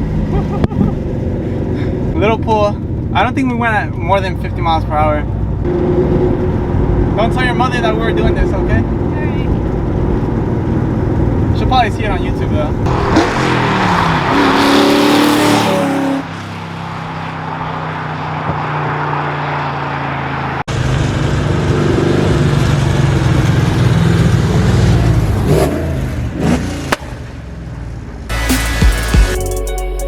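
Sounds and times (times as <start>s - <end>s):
car engine running: 0.0s - 29.3s
music: 28.3s - 30.0s.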